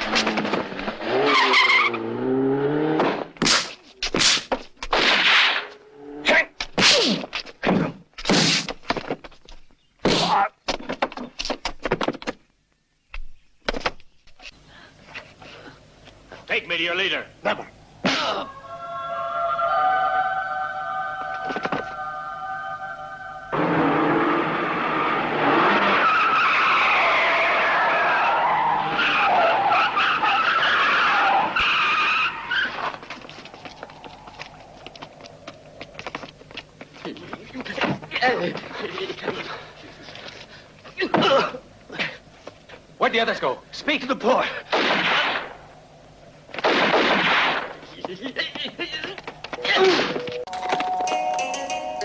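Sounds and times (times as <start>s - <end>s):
car tyres squealing: 0.1s - 3.2s, 23.5s - 35.1s
hard thuds and whacks: 3.0s - 5.6s.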